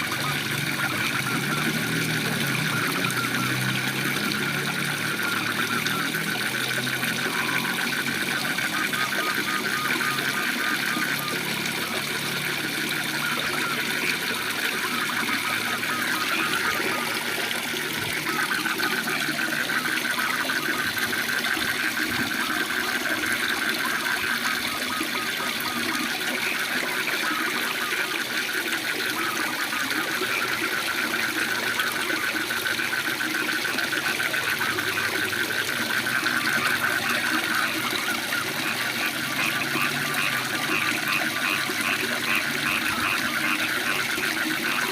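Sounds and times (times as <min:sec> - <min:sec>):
frogs calling: 0:00.0 - 0:44.9
waterfall rushing: 0:10.5 - 0:29.4.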